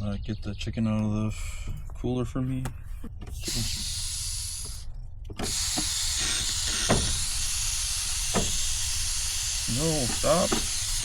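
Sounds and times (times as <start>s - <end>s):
gas hissing from stove: 3.3s - 11.0s.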